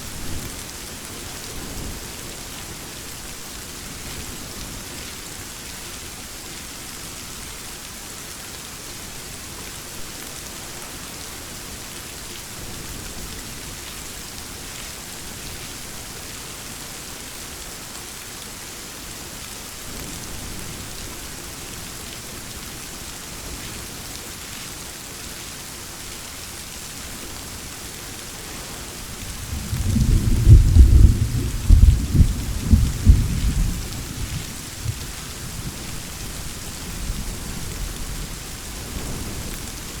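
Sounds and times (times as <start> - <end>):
heavy rain hissing: 26.2 - 40.0
distant thunder rumble: 29.2 - 36.0
loud thunderclap: 29.3 - 35.7.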